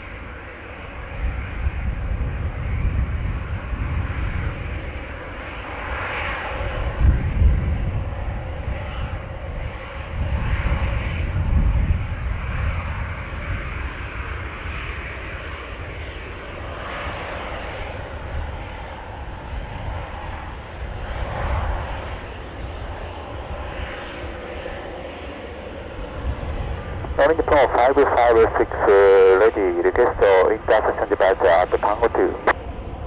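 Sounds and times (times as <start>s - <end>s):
airliner engines droning: 0.0s - 33.0s
wind buffeting microphone: 1.0s - 5.1s, 6.6s - 16.7s, 25.8s - 27.8s.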